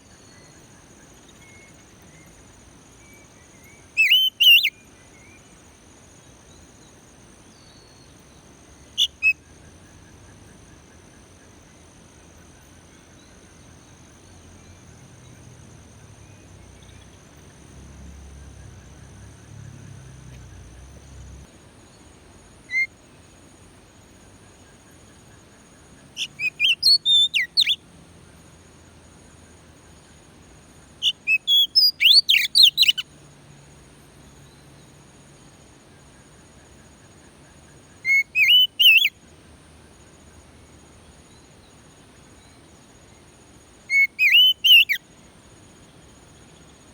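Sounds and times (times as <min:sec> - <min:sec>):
bird singing whistled notes: 0:00.0 - 0:05.6, 0:07.5 - 0:11.1, 0:22.6 - 0:22.9, 0:26.0 - 0:27.8, 0:31.0 - 0:33.1, 0:37.7 - 0:39.2, 0:43.9 - 0:45.0
faint steady hum: 0:00.0 - 0:46.9.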